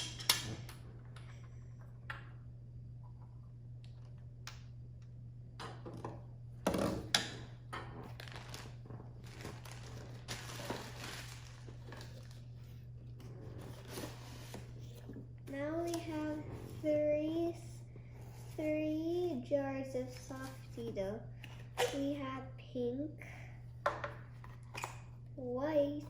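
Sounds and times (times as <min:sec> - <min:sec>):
rustling: 0:08.0 - 0:15.1.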